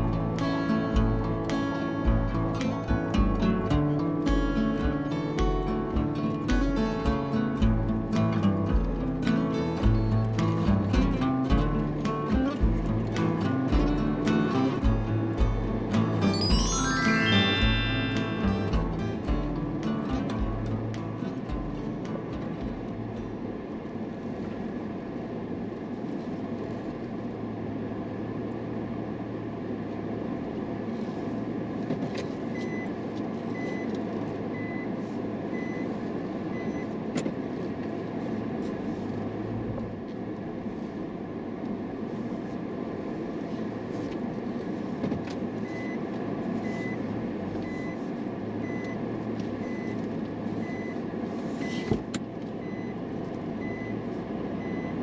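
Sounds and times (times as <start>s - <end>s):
vehicle engine running: 0.0s - 16.3s, 18.4s - 32.4s
high electronic beeps: 16.2s - 19.0s.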